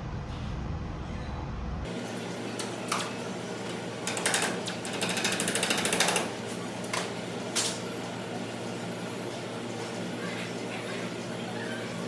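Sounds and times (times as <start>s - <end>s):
rapid mechanical clicks: 4.1s - 6.3s.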